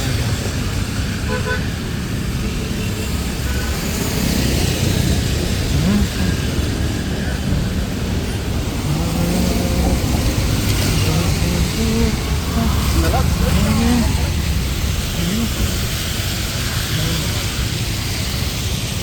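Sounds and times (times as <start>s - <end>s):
road traffic noise: 0.0s - 19.0s
faint voices: 5.1s - 18.0s.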